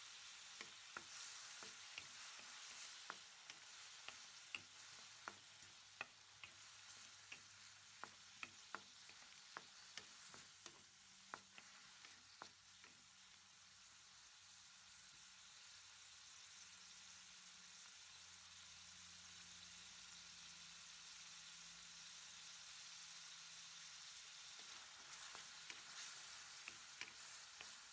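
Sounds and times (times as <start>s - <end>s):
vegetables sizzling in a pan: 0.0s - 27.9s
utensil clicking against pan: 0.4s - 13.0s, 24.6s - 27.9s.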